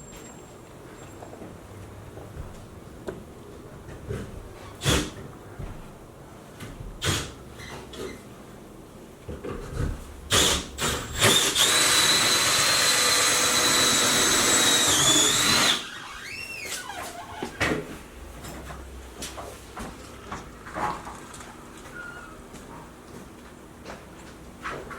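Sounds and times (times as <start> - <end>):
power drill whining: 10.3 - 16.7.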